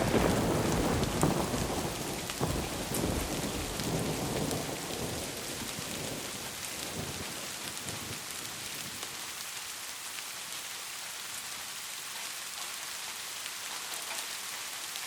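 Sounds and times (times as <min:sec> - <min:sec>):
thunder rumbling: 0:00.0 - 0:09.2
heavy rain: 0:00.0 - 0:15.0.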